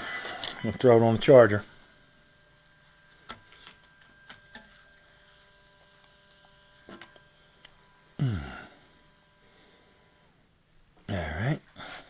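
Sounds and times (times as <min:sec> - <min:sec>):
steady electrical hum: 0:00.0 - 0:12.0
short low vocal sound: 0:08.2 - 0:08.8.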